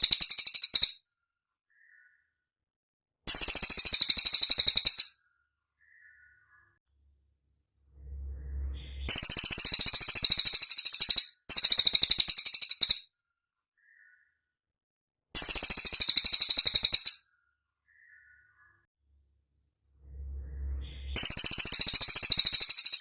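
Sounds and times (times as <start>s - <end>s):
faint short bird calls: 1.7s - 2.4s, 5.8s - 6.8s, 13.8s - 14.5s, 17.8s - 18.9s
bird singing rapid high trills: 7.9s - 13.0s, 19.9s - 23.0s.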